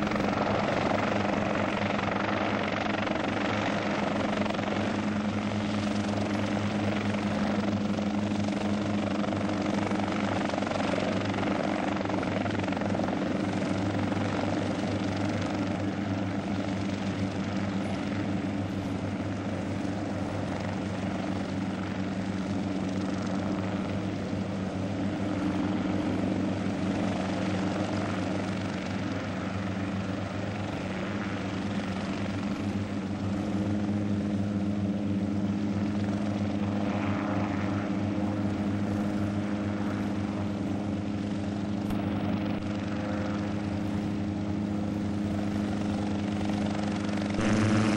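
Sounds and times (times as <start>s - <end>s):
helicopter in flight: 0.0s - 47.9s.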